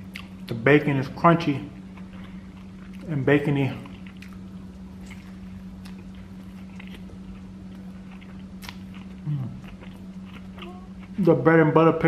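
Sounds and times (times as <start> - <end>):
man chewing food: 0.0 - 0.6, 1.7 - 11.5
steady low hum: 0.0 - 12.0
wet mouth clicks: 8.6 - 9.8
man humming mm: 9.2 - 9.7.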